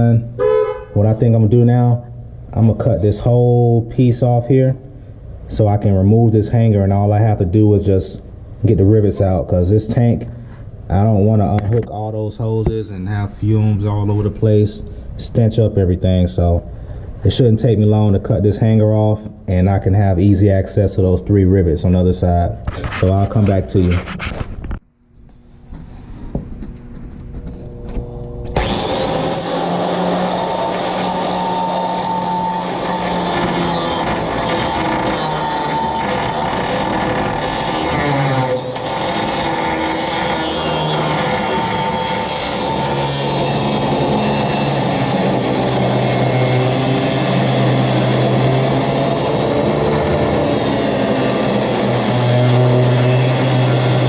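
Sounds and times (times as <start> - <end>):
faint hum: 0.0 - 28.8
power tool running: 27.4 - 54.0.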